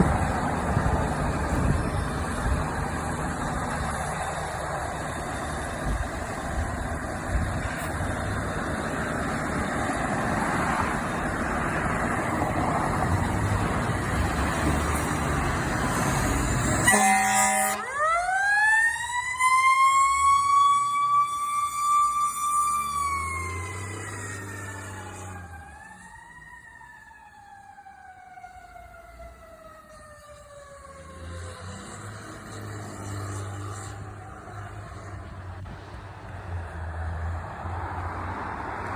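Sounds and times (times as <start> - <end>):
fire engine running: 0.0 - 38.9
horn blast: 16.8 - 18.0
siren wailing: 16.8 - 32.4.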